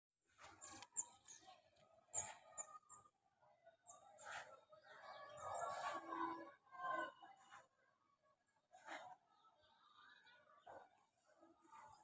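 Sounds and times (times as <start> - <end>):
faint bird chirps: 0.5 - 5.6.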